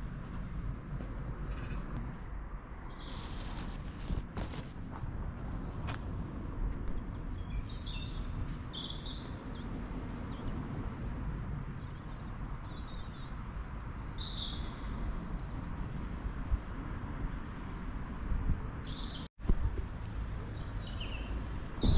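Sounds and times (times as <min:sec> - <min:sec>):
songbirds chirping and singing: 0:20.5 - 0:21.9.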